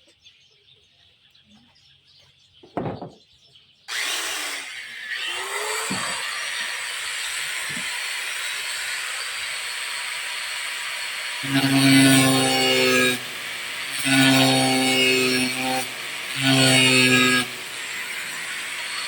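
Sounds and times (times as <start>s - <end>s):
knock: 2.6s - 3.2s.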